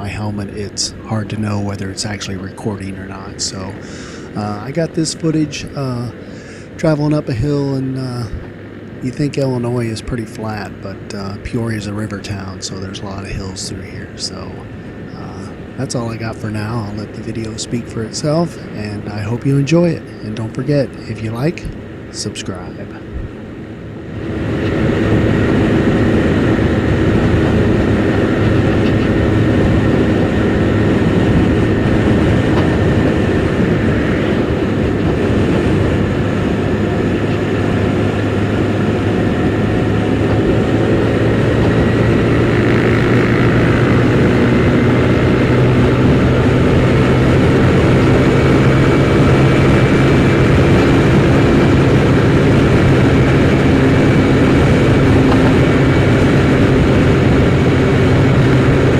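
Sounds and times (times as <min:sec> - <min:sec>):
rushing wind noise: 0:00.0 - 0:58.9
scooter engine running: 0:21.3 - 0:58.9.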